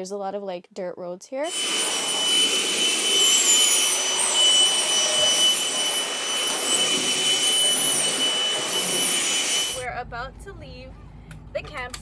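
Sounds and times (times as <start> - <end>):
vacuum cleaner whining: 1.4 - 9.9.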